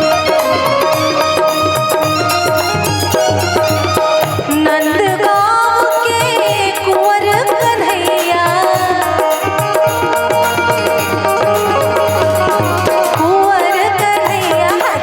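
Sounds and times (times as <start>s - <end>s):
sliding melody line: 0.0s - 5.0s, 9.2s - 15.0s
hand drum beat: 0.0s - 15.0s.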